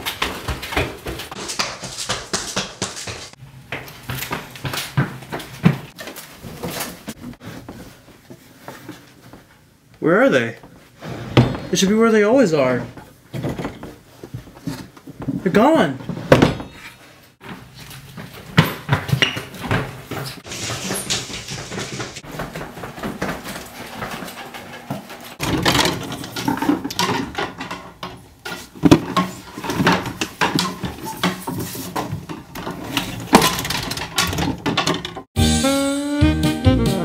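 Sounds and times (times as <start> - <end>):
hurried footsteps: 0.0 - 9.6, 17.4 - 32.6
objects knocking and clattering: 12.9 - 15.4, 16.0 - 35.4.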